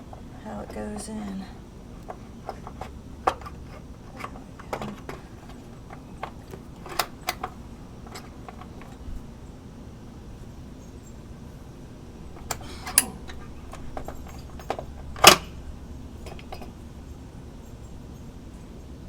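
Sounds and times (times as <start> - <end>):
clicks and taps of oil cap handling: 2.0 - 9.1, 12.4 - 15.4, 16.2 - 16.8.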